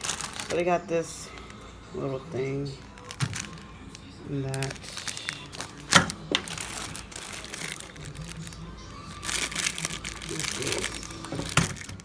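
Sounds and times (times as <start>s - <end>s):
crinkling and clicking handling: 0.0s - 1.7s, 2.7s - 12.0s
background music: 0.0s - 12.0s.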